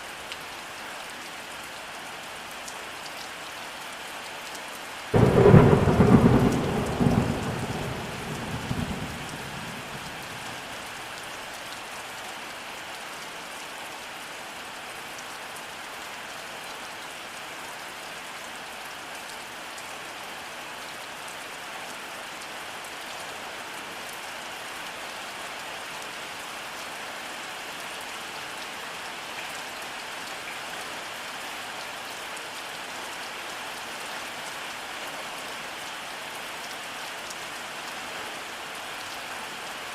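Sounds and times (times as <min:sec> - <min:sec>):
steady rainfall: 0:00.0 - 0:39.9
thunderclap rumbling: 0:05.2 - 0:10.4.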